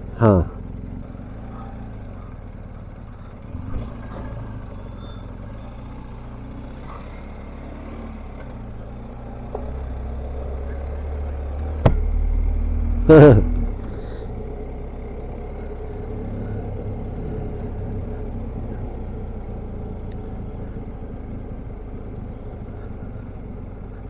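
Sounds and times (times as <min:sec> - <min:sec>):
motorcycle engine running: 0:00.0 - 0:24.0
road noise: 0:00.0 - 0:24.0
sharp knock: 0:11.8 - 0:12.1.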